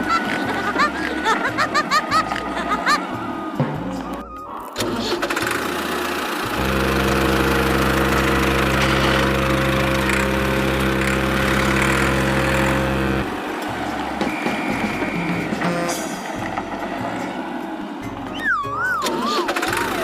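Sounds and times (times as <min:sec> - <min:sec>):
tractor engine idling: 0:04.8 - 0:14.2.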